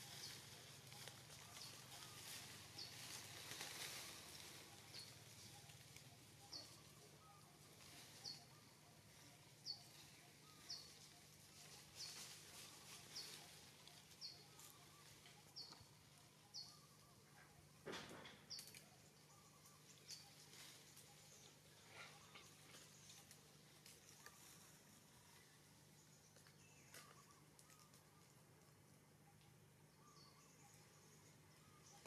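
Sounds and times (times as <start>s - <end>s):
rustling: 0.0s - 15.8s
bird chirping: 0.0s - 32.0s.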